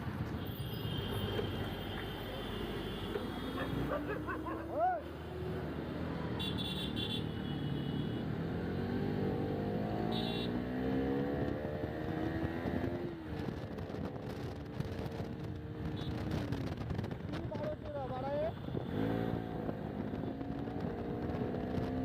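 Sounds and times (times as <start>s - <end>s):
motorcycle engine accelerating: 8.3s - 17.4s, 18.8s - 22.0s.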